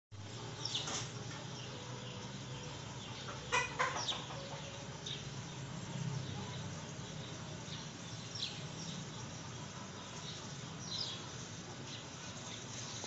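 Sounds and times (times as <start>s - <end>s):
steady low hum: 0.1s - 13.0s
birds chirping: 0.2s - 13.0s.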